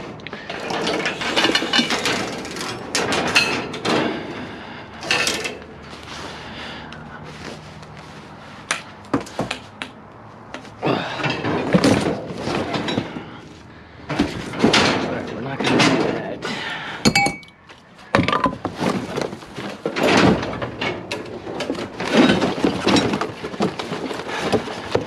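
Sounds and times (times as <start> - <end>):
debris clattering in a dumpster: 0.0 - 6.2, 10.8 - 17.4, 18.2 - 25.0.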